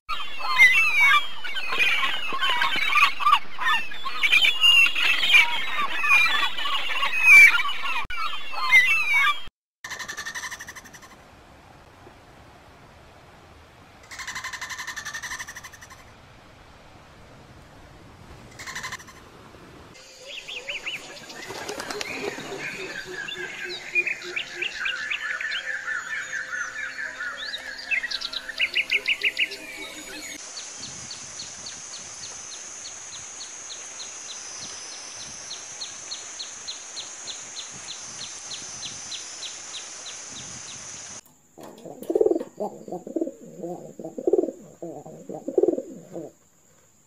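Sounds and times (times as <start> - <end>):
steady high hiss: 10.6 - 47.0
songbirds chirping and trilling: 19.9 - 46.8.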